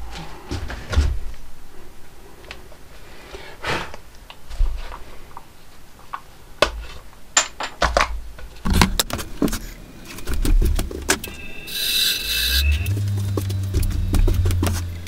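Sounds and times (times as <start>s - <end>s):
motor humming: 11.3s - 15.0s.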